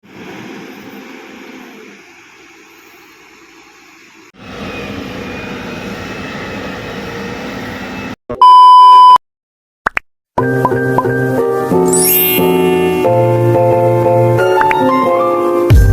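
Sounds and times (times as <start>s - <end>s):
heavy machinery engine running: 0.0s - 8.2s
music: 10.4s - 15.9s
loud electronic beep: 11.9s - 13.4s.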